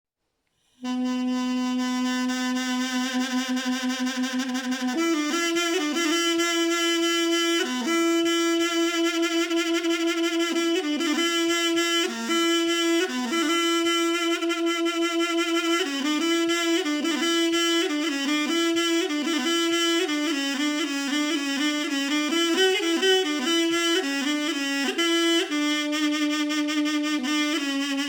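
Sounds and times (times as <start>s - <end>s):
double-reed pipe melody: 0.8s - 28.0s.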